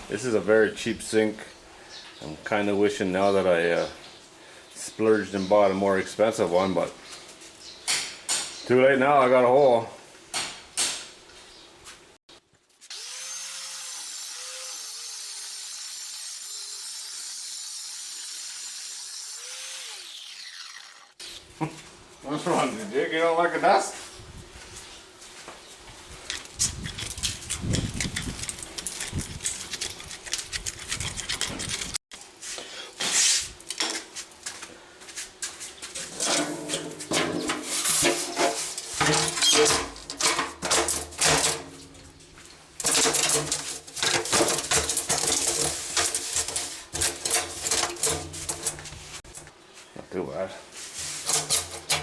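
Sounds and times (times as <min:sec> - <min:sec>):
metal sink clattering and scraping: 0:36.0 - 0:42.2, 0:42.8 - 0:49.4, 0:51.0 - 0:52.0.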